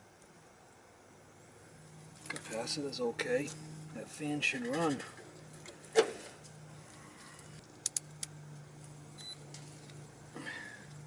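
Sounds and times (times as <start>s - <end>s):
sharp clicks: 7.8s - 8.4s.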